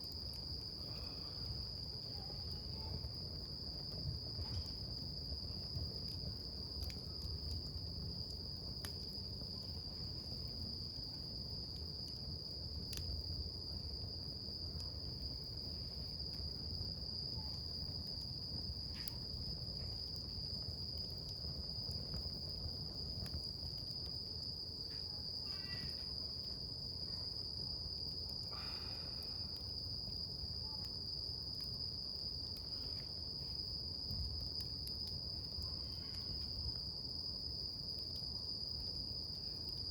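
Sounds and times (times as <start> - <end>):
campfire crackling and popping: 0.0 - 39.9
insects trilling: 14.4 - 39.9.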